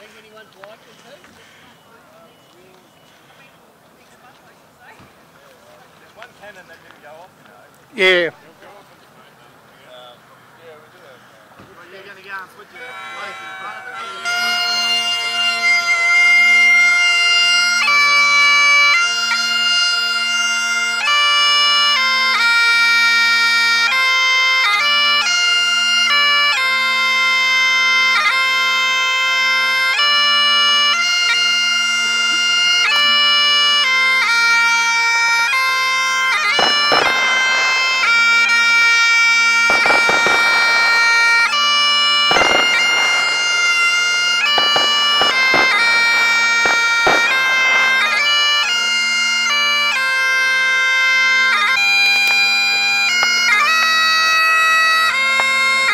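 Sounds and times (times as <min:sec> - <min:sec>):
bagpipes playing: 0:11.8 - 0:55.9
crackling noise: 0:36.4 - 0:49.2.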